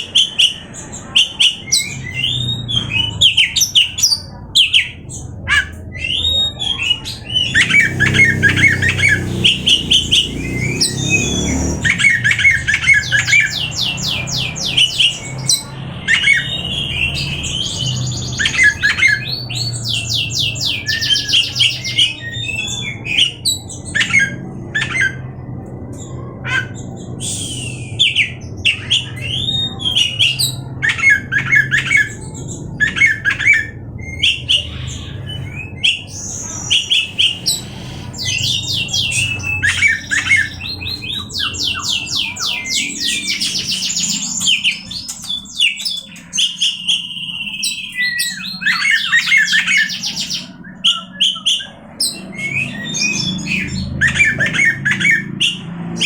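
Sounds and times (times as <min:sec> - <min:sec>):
bird singing trills and whistles: 0:00.0 - 0:56.0.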